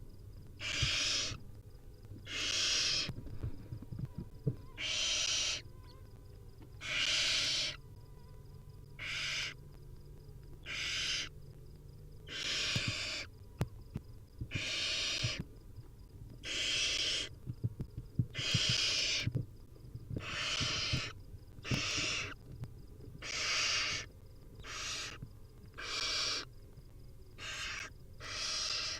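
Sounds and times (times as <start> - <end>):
owl nestlings hissing calls: 0.6 - 1.4, 2.3 - 3.1, 4.8 - 5.6, 6.8 - 7.8, 9.0 - 9.6, 10.6 - 11.3, 12.3 - 13.3, 14.5 - 15.4, 16.4 - 17.3, 18.3 - 19.3, 20.2 - 22.4, 23.2 - 25.2, 25.8 - 26.5, 27.4 - 28.9.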